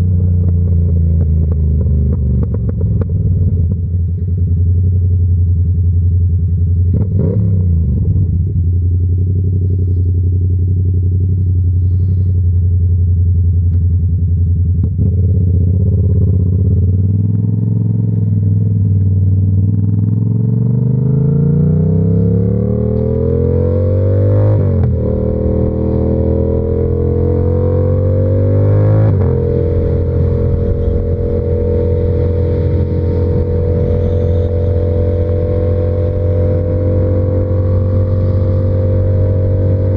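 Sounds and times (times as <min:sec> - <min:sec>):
motorcycle engine revving: 0:14.8 - 0:39.9.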